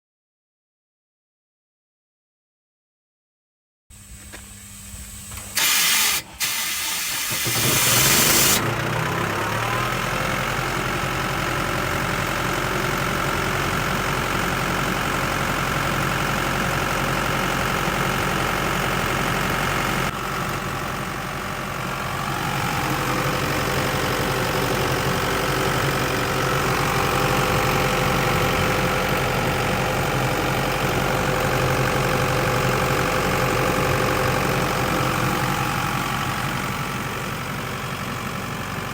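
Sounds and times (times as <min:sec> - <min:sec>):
diesel engine running: 0:03.9 - 0:38.9
engine starter cranking: 0:05.3 - 0:09.2.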